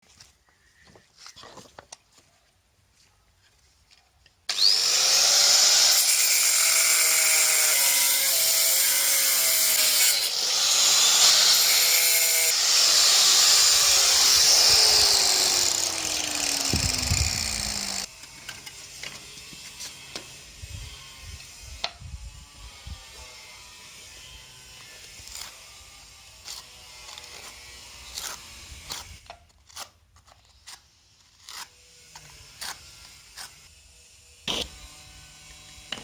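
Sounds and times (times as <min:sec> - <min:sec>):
disc cutter grinding stone: 0:04.5 - 0:18.1.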